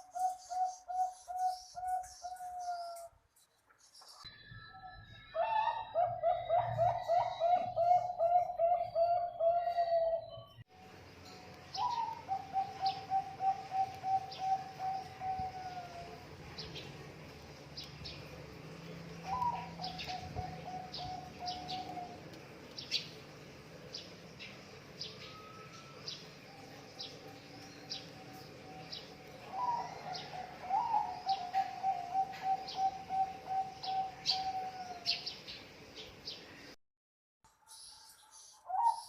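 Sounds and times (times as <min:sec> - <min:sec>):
dove cooing: 0:05.4 - 0:10.4, 0:11.8 - 0:16.3, 0:19.2 - 0:22.4, 0:28.0 - 0:35.3
small birds chirping: 0:07.6 - 0:36.8.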